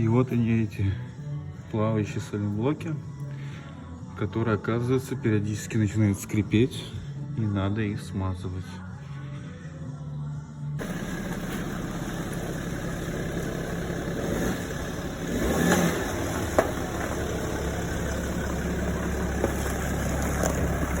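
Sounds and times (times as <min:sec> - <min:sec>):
car engine running: 0:10.8 - 0:21.0.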